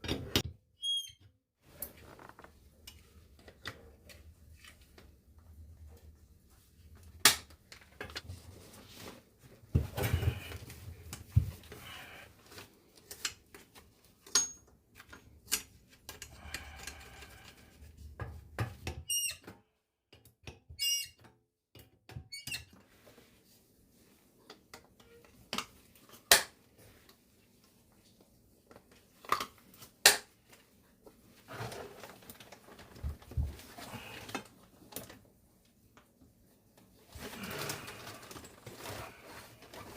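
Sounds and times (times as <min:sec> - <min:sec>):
clinks of metal plumbing fittings: 0:14.2 - 0:14.7.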